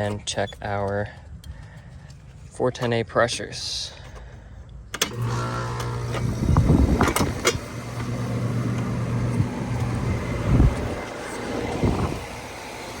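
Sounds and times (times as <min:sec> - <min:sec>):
air conditioner compressor hum: 0:05.1 - 0:13.0.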